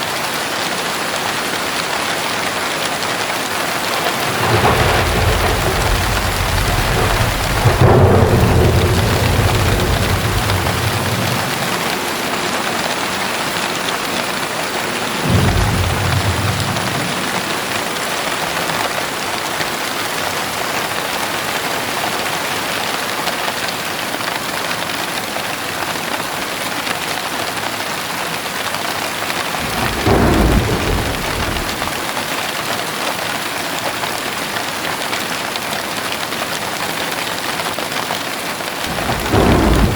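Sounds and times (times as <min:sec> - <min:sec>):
heavy rainfall: 0:00.0 - 0:39.9
thunder rumbling: 0:02.5 - 0:19.2, 0:29.4 - 0:32.1, 0:38.8 - 0:39.9.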